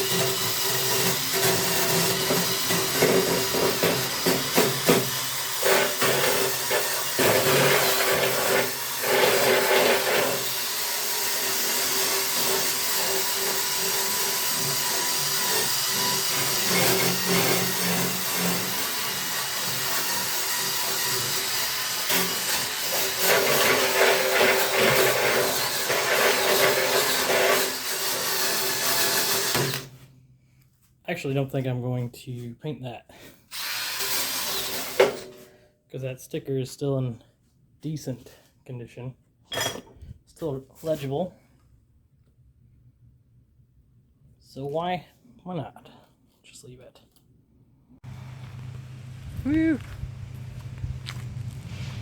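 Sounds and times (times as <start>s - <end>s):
small power tool hissing: 48.0s - 52.0s.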